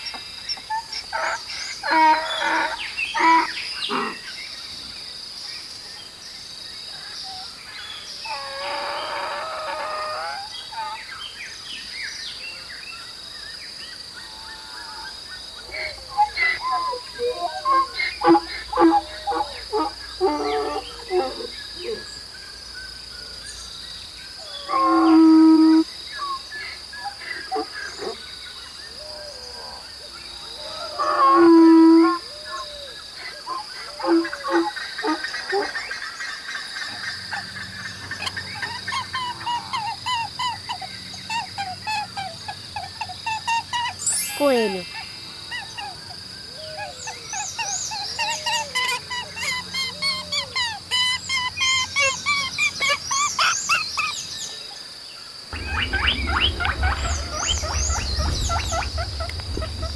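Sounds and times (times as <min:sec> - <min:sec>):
high insect drone: 0:00.0 - 0:59.9
bird chirps: 0:55.5 - 0:59.9
loud held animal calls: 0:55.6 - 0:59.9.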